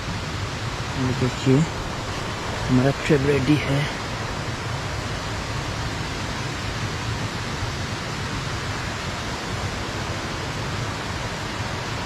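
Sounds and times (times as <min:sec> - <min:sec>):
stream water rushing: 0:00.6 - 0:09.2.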